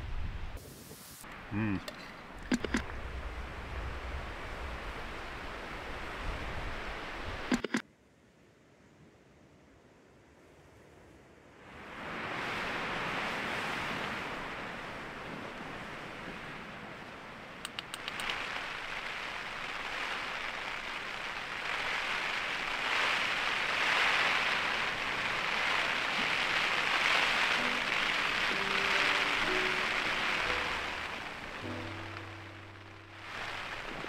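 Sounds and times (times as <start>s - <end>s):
quick clicks: 2.4s - 2.8s, 7.5s - 7.8s, 17.6s - 18.4s
heavy rain falling: 14.3s - 34.0s
faint music notes: 27.0s - 34.0s.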